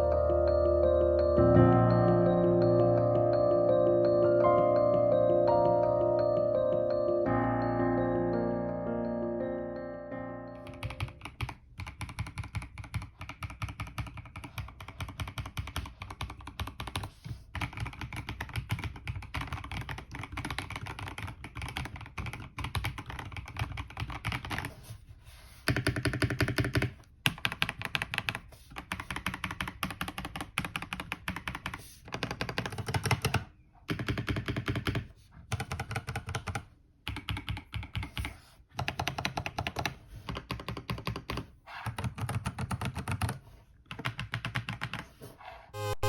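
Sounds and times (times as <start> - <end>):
mechanical keyboard typing: 10.6 - 24.7, 25.7 - 45.1.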